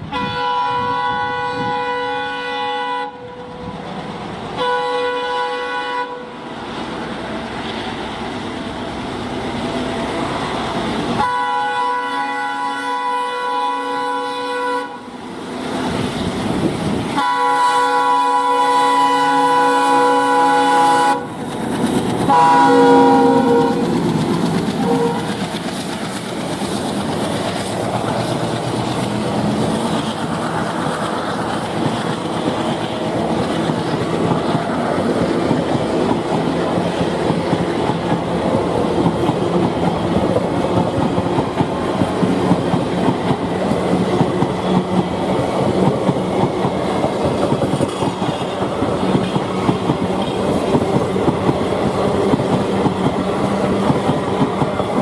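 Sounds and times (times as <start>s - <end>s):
locomotive horn: 0.0s - 3.6s, 4.6s - 6.4s, 11.2s - 15.2s, 17.2s - 21.4s, 22.3s - 24.0s, 24.8s - 25.4s
train rumbling past: 0.0s - 55.0s
wheels clattering over rail joints: 21.3s - 55.0s.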